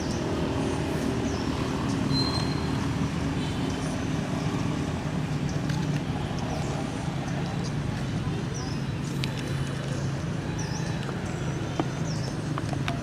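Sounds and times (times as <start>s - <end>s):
faint high chirps and squeaks: 2.1s - 2.8s.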